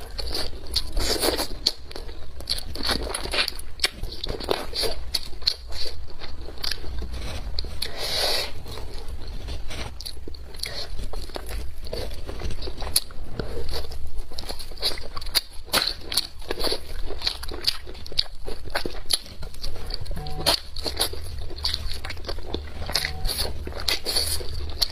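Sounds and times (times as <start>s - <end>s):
person chewing and biting: 0.0s - 24.9s
steady low hum: 16.4s - 24.9s.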